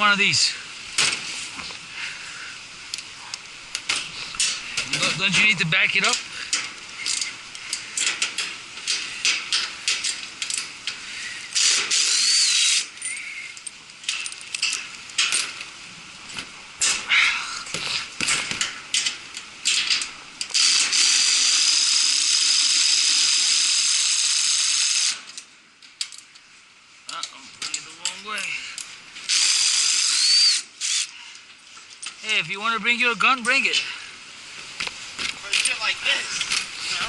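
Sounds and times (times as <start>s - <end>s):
steady whirring hiss: 0.0s - 37.0s
ratchet wrench clicking: 11.6s - 13.3s.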